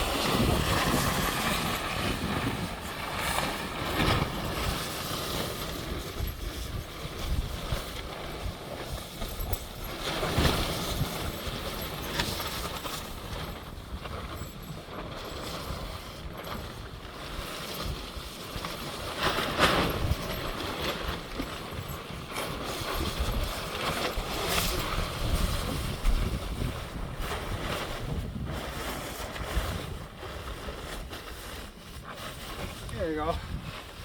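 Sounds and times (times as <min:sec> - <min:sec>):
gusty wind buffeting microphone: 0:00.0 - 0:34.0.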